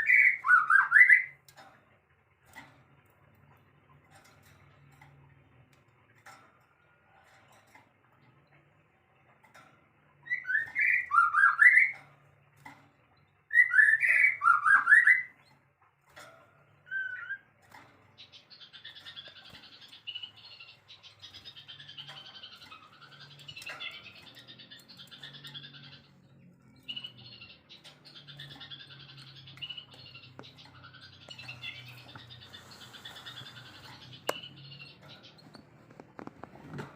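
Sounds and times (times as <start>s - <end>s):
songbird whistled phrases: 13.5s - 15.3s.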